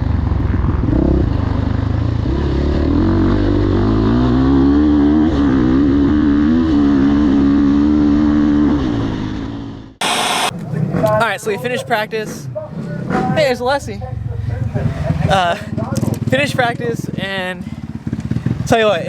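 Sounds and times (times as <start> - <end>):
motocross bike engine running: 14.6 - 19.0.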